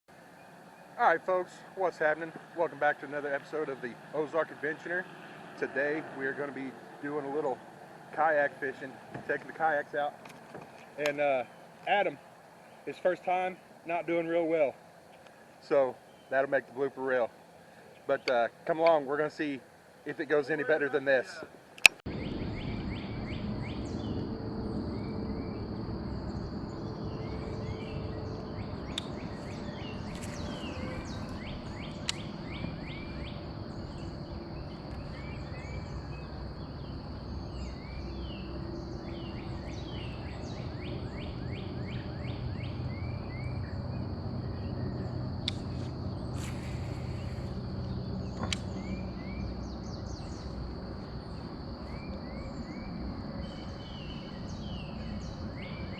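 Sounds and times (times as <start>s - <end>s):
birds chirping: 0.1s - 55.9s
high-pitched insect drone: 45.8s - 53.8s.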